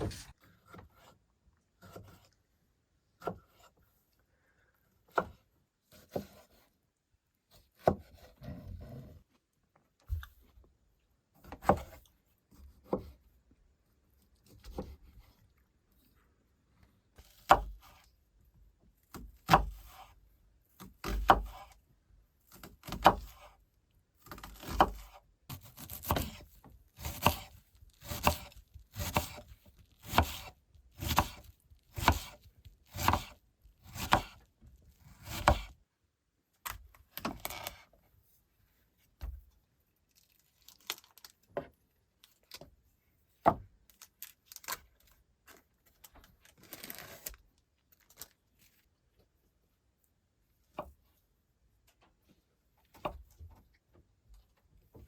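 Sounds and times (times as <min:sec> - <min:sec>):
axe chopping wood: 0:30.0 - 0:34.4, 0:35.2 - 0:35.7.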